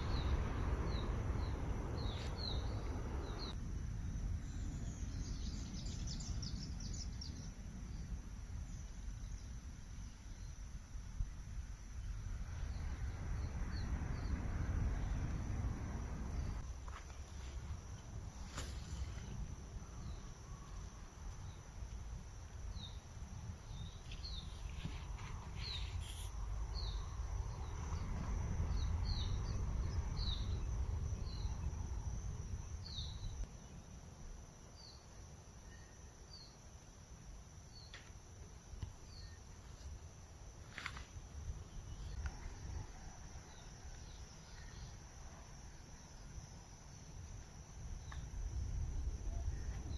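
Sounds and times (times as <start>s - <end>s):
low rumble: 0.0s - 5.9s
insect trill: 0.0s - 49.9s.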